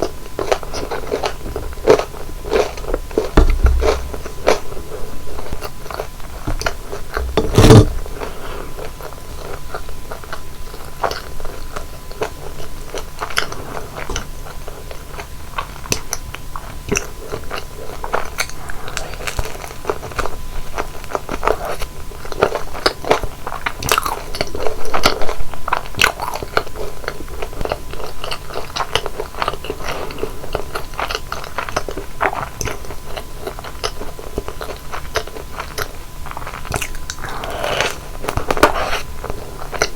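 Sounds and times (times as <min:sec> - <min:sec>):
crunchy chewing: 0:00.0 - 0:39.9
loud thump: 0:03.4 - 0:04.4, 0:07.2 - 0:08.2.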